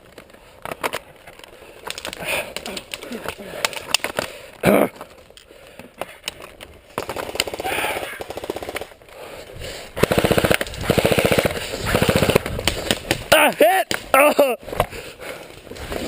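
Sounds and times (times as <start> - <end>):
airsoft guns firing bursts: 7.0 - 8.9, 10.0 - 13.2.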